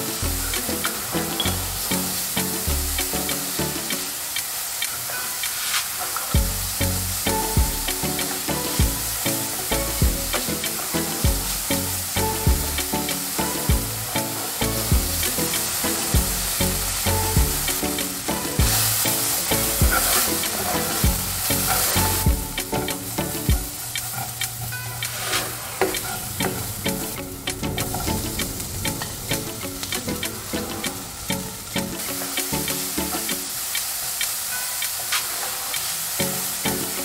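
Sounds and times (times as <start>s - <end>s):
background music with a beat: 0.0s - 5.6s, 6.3s - 37.0s
food sizzling in a pan: 0.0s - 37.0s
spatula stirring in a pan: 17.7s - 26.3s.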